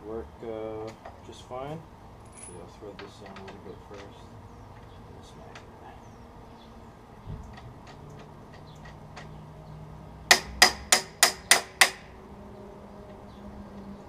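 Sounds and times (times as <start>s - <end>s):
hammer striking metal with ringing: 10.3s - 12.1s.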